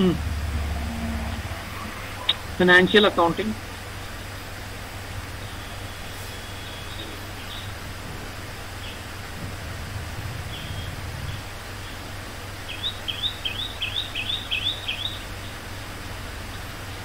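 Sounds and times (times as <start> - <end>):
low hum: 0.0 - 14.5
steady background hiss: 0.0 - 17.0
bird chirping: 5.3 - 15.7.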